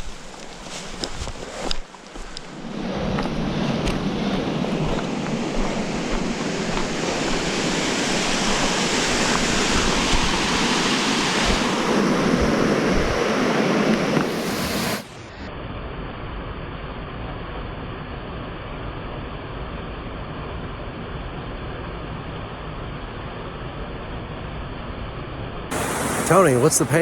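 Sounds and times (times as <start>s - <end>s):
rushing water: 0.0s - 15.0s, 25.7s - 27.0s.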